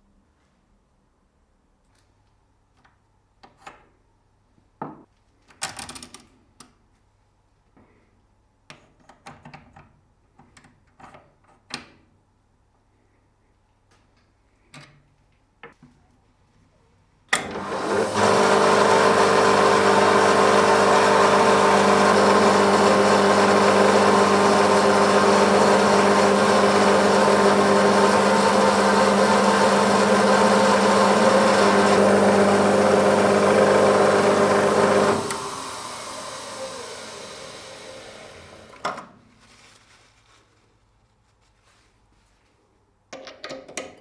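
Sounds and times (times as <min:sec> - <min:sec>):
electric machine tool running: 0:17.4 - 0:38.9.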